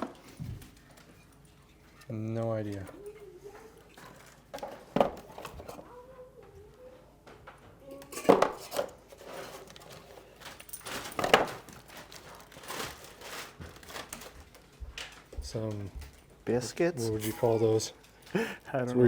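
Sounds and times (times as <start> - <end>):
packaging rustling: 8.6 - 15.3.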